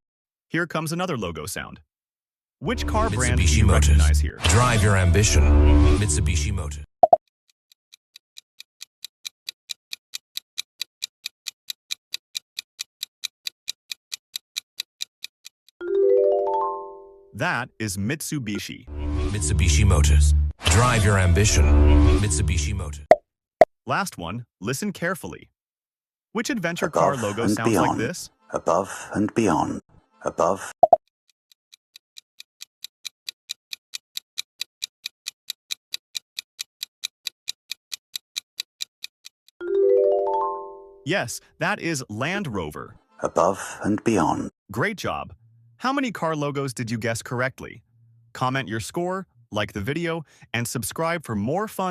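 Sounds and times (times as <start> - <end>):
clock ticking: 7.0 - 15.8, 30.8 - 39.6.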